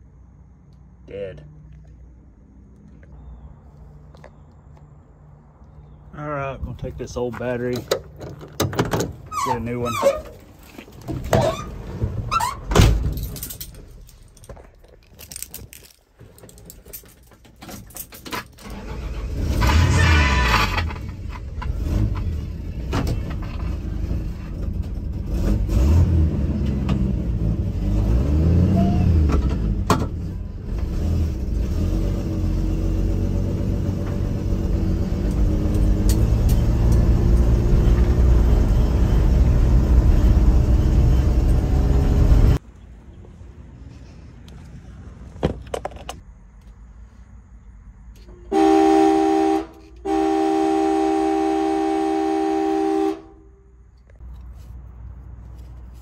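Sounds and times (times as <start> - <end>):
road noise: 0.0 - 56.0
car engine driving off: 18.6 - 42.6.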